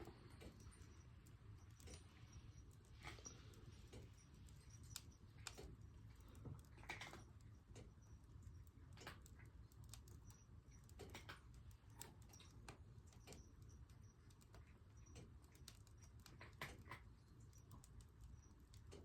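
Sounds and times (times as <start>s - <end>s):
firewood crackling and popping: 14.3s - 19.0s.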